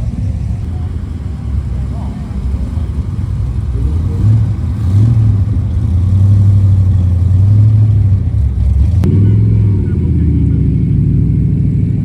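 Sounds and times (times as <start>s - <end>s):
wind buffeting microphone: 0.0s - 9.1s
car engine running: 0.0s - 12.0s.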